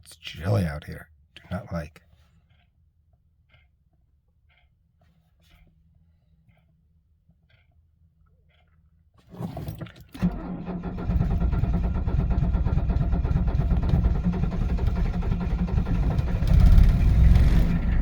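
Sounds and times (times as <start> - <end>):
diesel engine running: 10.2 - 18.0
starter motor cranking: 10.2 - 18.0.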